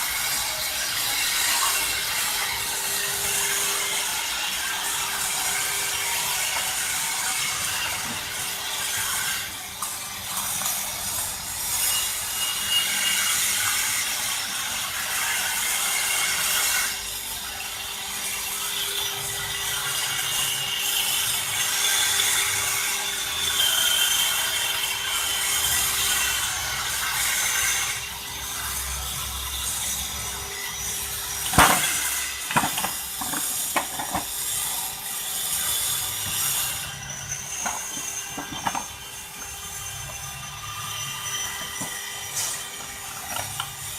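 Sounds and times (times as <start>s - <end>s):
machine bit grinding stone: 23.3s - 43.9s.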